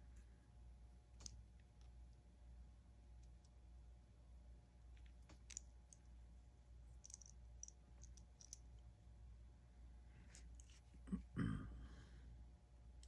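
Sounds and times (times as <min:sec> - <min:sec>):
low room hum: 0:00.0 - 0:13.0
small plastic clicks: 0:01.2 - 0:01.9, 0:05.0 - 0:06.1, 0:07.0 - 0:08.6.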